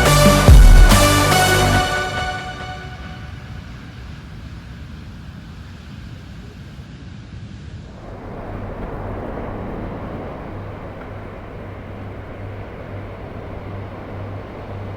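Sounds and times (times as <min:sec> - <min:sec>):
surf washing: 0:00.0 - 0:14.9
wind buffeting microphone: 0:07.8 - 0:14.9.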